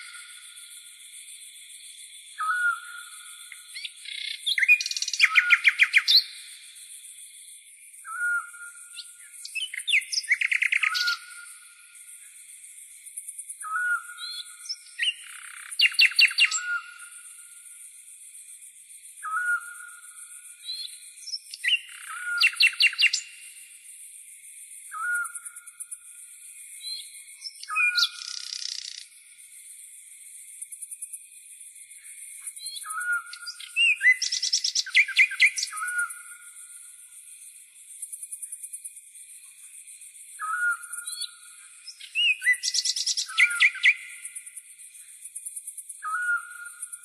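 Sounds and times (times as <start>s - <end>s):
songbird whistle and trill: 2.3s - 6.5s, 8.0s - 11.6s, 13.6s - 17.4s, 19.2s - 23.6s, 24.9s - 25.7s, 26.8s - 29.2s, 32.6s - 36.7s, 40.4s - 44.5s, 46.0s - 47.0s.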